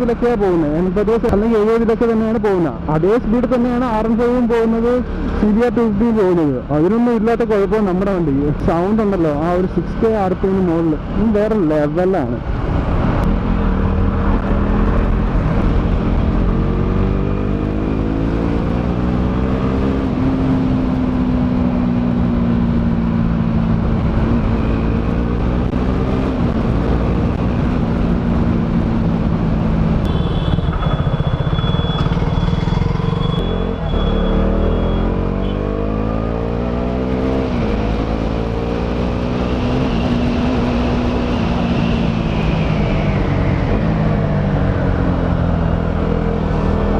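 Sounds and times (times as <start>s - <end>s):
motorcycle engine revving: 12.6s - 46.9s.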